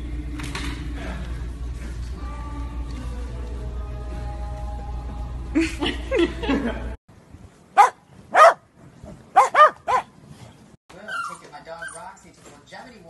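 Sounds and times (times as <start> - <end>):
dogs barking: 7.8 - 10.1.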